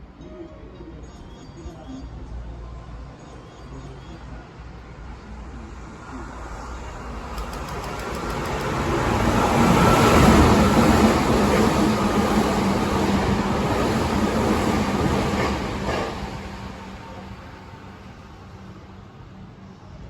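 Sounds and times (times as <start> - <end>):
electric train rumble: 4.7 - 20.0.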